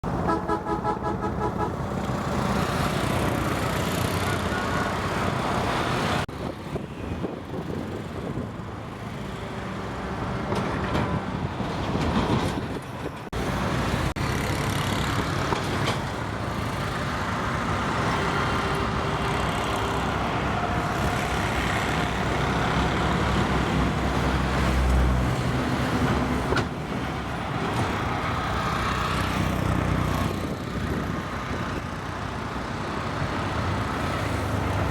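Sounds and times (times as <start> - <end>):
wind noise: 6.3 - 9.2, 10.2 - 14.1, 20.0 - 32.1.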